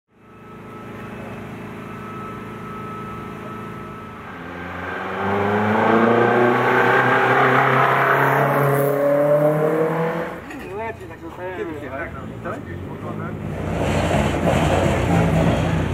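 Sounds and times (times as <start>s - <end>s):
race car engine revving: 3.4s - 10.6s, 12.1s - 15.9s.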